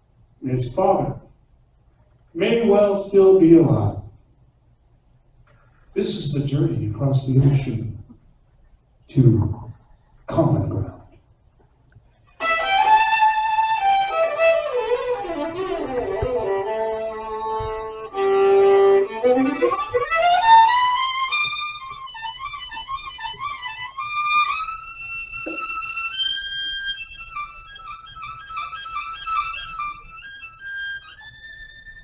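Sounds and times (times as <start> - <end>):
violin playing slow melody: 12.4 - 32.0.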